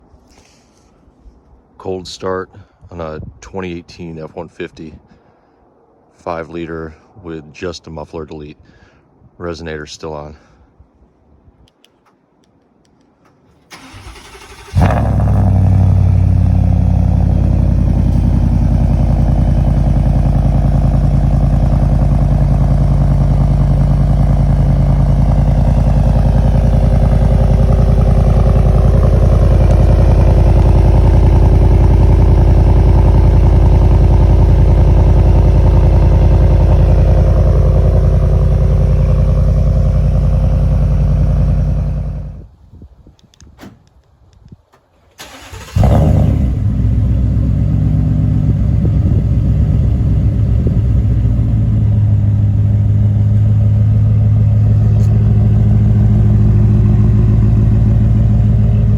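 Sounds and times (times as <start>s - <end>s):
starter motor cranking: 13.7s - 15.2s
loud engine idling: 13.7s - 42.4s, 45.3s - 58.9s.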